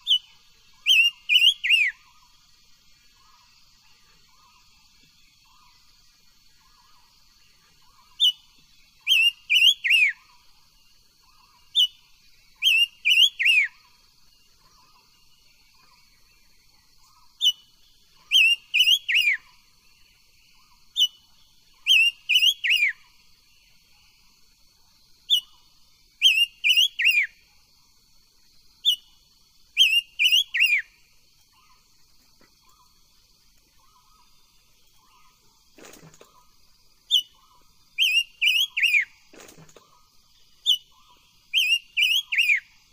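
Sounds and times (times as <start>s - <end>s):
bird singing whistled phrase: 0.0s - 2.0s, 9.0s - 10.2s, 12.6s - 13.8s, 21.8s - 23.0s, 26.2s - 27.3s, 29.8s - 30.9s, 38.0s - 39.1s, 41.5s - 42.7s.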